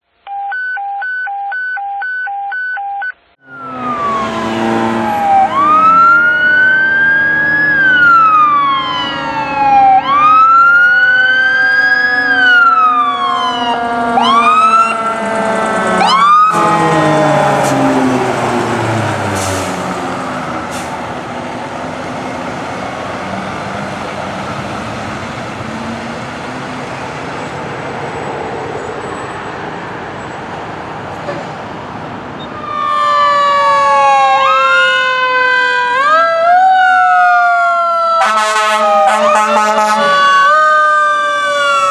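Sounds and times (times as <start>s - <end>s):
electronic siren wailing: 3.0s - 20.7s, 32.4s - 41.9s
truck engine and road noise: 3.2s - 41.9s
mechanical siren moaning: 3.4s - 21.1s, 32.5s - 41.9s.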